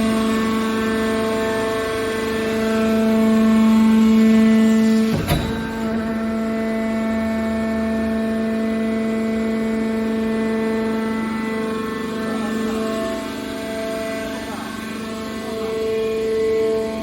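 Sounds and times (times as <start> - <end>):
hydraulic baler power unit humming: 0.2 - 16.9.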